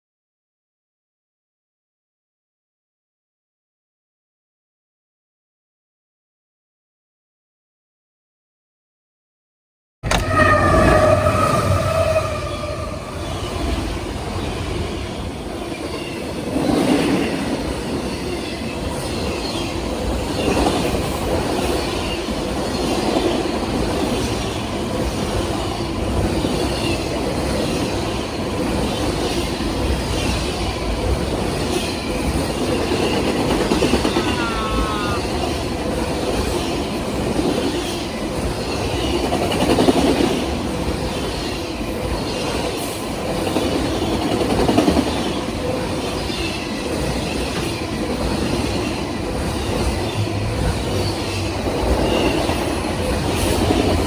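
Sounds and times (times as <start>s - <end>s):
high wheel squeals: 10.1s - 13.8s, 34.0s - 35.4s.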